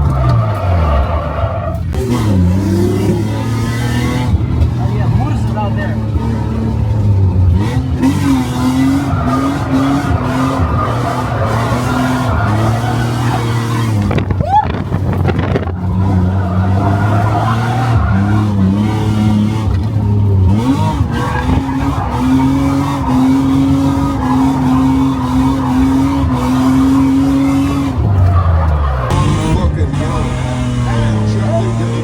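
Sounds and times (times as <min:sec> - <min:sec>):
car engine at high revs: 0:00.0 - 0:32.0
tyre squeal: 0:08.1 - 0:14.8.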